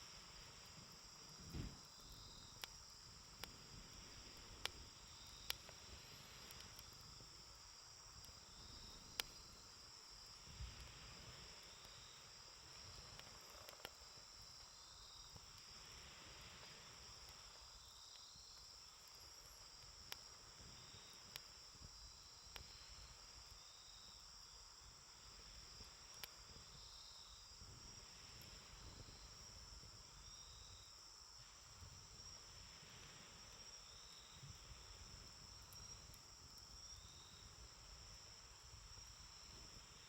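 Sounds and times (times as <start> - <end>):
campfire crackling: 0.0 - 40.0
insects trilling: 0.0 - 40.0
fire popping: 0.2 - 15.8.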